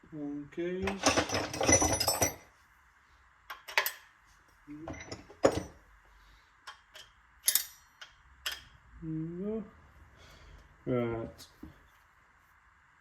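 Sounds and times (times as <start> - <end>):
metal tools clicking and knocking: 0.8 - 2.5, 3.5 - 4.1, 4.8 - 5.8, 6.7 - 8.7
person murmuring: 9.0 - 9.8.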